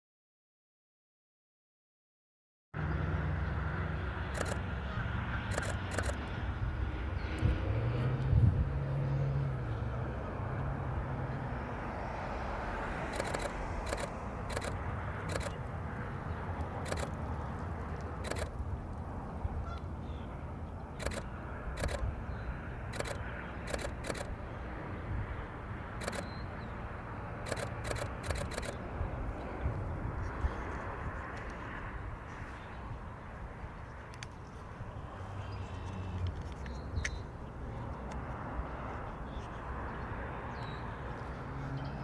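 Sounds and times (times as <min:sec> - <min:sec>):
traffic hum: 0:02.8 - 0:42.0
camera shutter clicking: 0:04.4 - 0:04.7, 0:05.5 - 0:06.3, 0:13.0 - 0:15.6, 0:16.8 - 0:17.2, 0:18.2 - 0:18.6, 0:21.0 - 0:22.1, 0:22.9 - 0:24.4, 0:26.0 - 0:26.4, 0:27.5 - 0:28.8.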